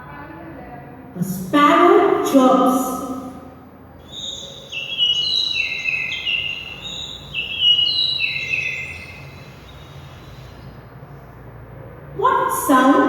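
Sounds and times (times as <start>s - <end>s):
bird chirping whistled notes: 4.0s - 10.9s.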